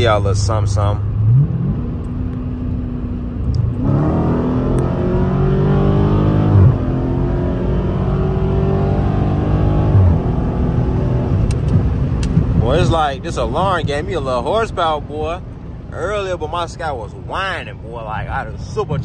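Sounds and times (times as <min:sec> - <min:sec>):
car engine revving through gears: 0:00.7 - 0:13.5.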